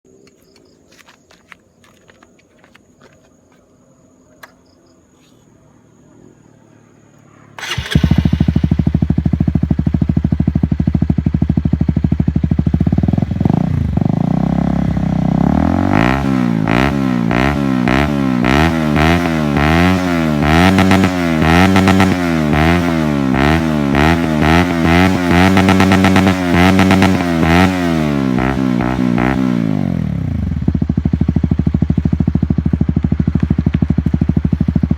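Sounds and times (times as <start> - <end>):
motorcycle engine revving: 7.6 - 34.9.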